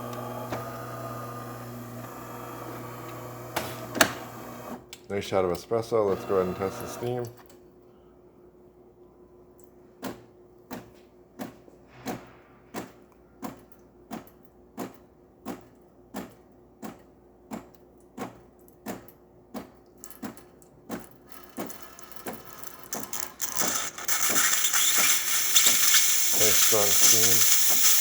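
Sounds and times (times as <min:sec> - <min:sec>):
espresso machine clicking pulse: 0:06.1 - 0:07.2, 0:21.3 - 0:28.0
steam hissing: 0:23.4 - 0:28.0.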